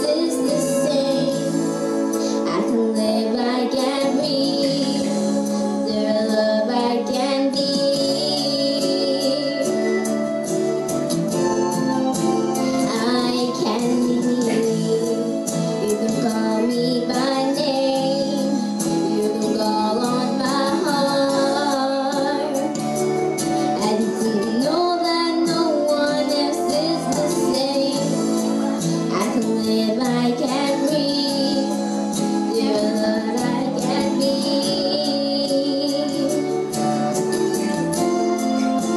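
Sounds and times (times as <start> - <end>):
woman singing: 0.0 - 10.2, 12.6 - 38.9
instrumental accompaniment: 0.0 - 38.9.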